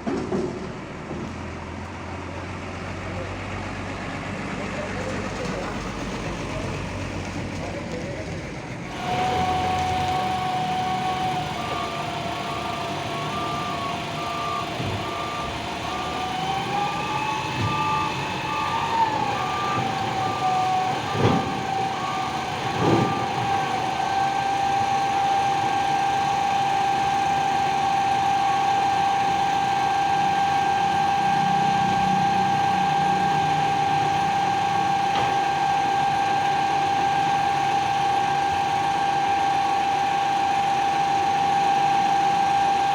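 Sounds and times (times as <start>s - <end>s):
heavy vehicle engine whine: 0.0s - 42.9s
reversing beeper: 8.9s - 24.2s, 24.8s - 42.9s.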